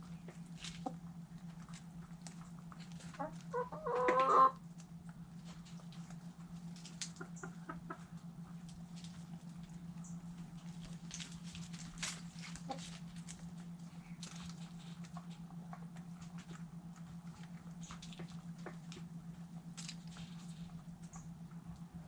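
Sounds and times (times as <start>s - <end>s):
steady low hum: 0.0s - 22.0s
chickens pecking taps: 0.3s - 9.2s, 10.6s - 13.5s, 14.2s - 19.1s.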